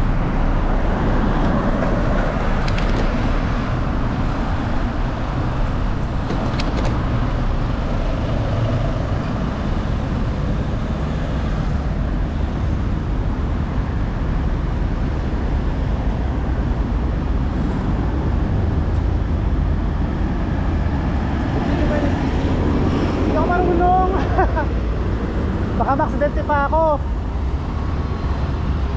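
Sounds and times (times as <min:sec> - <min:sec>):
bicycle road and wind noise: 0:00.0 - 0:28.9.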